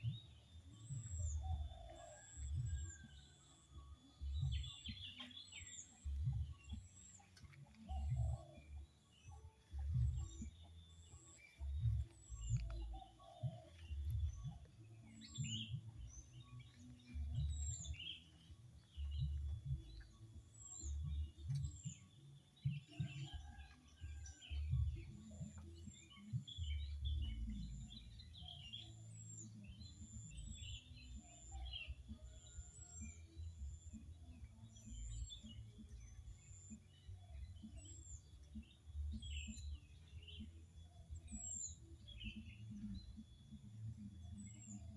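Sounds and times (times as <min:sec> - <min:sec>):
birds chirping: 0:00.0 - 0:44.9
low rumbling noise: 0:11.4 - 0:28.4.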